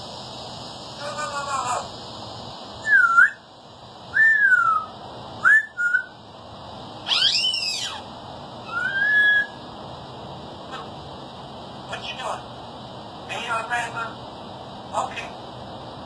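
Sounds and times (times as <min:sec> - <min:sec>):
parrot whistling: 0:02.8 - 0:03.5, 0:04.1 - 0:06.2, 0:07.0 - 0:09.6
parrot multi-tone call: 0:07.0 - 0:09.6.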